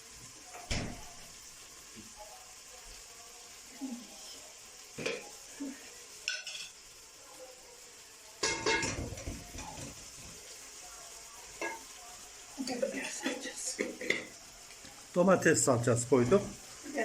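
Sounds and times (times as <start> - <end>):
metal spoon clinking on pot: 6.3 - 6.8, 8.4 - 9.0.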